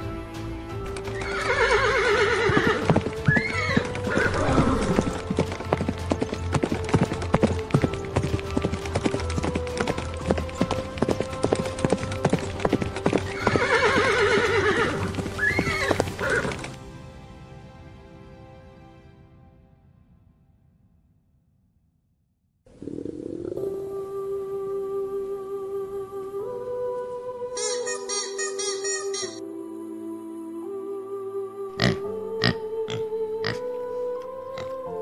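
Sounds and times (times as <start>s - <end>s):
background music: 0.0s - 20.8s, 22.8s - 35.0s
hooves clip-clopping: 0.8s - 16.9s
horse whinnying: 1.1s - 5.6s, 13.2s - 16.7s.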